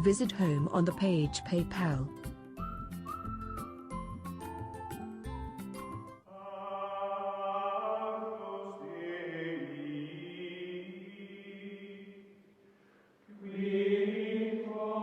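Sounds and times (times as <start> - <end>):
choir-like chanted chords: 6.3 - 12.3, 13.3 - 15.0.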